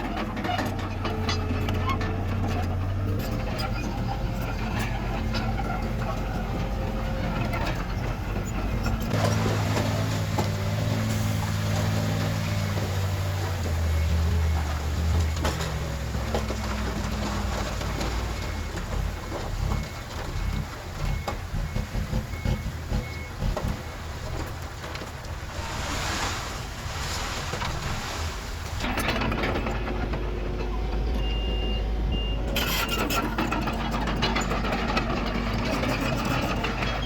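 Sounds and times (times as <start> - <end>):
diesel machinery engine: 0.0 - 37.0
reversing alarm beeping: 18.0 - 23.9.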